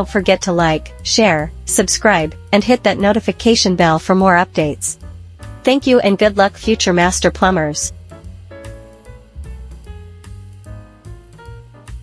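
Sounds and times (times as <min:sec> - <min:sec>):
instrumental music with low beat: 0:04.9 - 0:05.7, 0:06.4 - 0:12.0.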